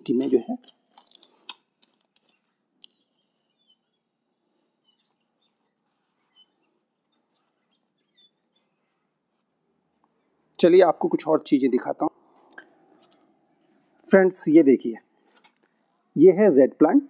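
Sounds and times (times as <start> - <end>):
faint bird chirps: 2.3 - 10.5.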